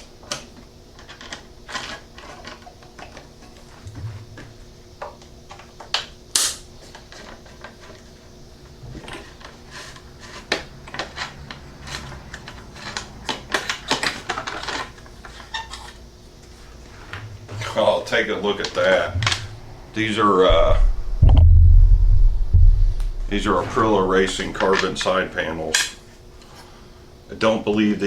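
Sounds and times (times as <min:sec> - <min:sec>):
sharp knock: 0:20.5 - 0:23.7.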